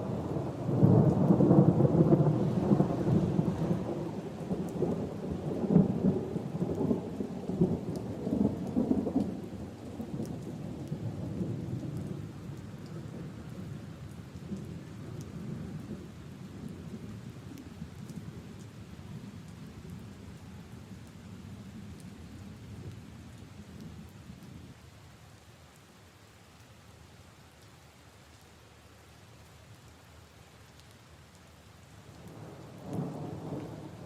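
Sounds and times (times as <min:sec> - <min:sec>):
rain on leaves and puddles: 0:00.0 - 0:34.0
low thunder roll: 0:32.3 - 0:34.0.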